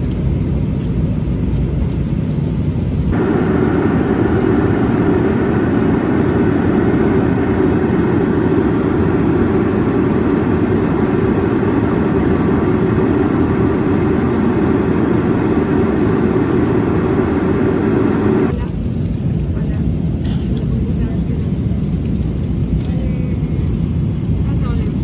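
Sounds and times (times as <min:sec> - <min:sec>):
jet engines rumbling: 0:00.0 - 0:25.0
rushing air: 0:02.0 - 0:18.5.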